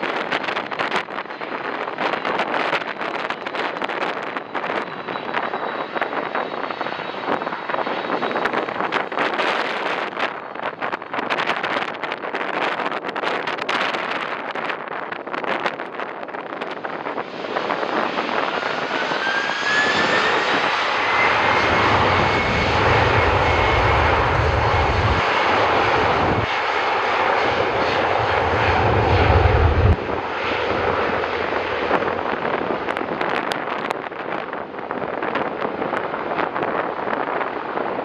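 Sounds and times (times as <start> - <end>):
deep jet rumble: 0.0 - 38.0
jet engine noise: 0.0 - 38.0
jet fan whine: 15.4 - 37.8.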